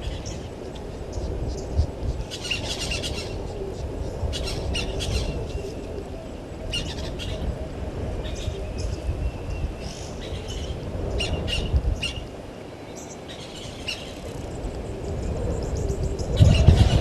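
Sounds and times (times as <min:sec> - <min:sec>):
birds calling: 0:00.0 - 0:07.5, 0:08.2 - 0:17.0
steady low rumble: 0:14.5 - 0:17.0.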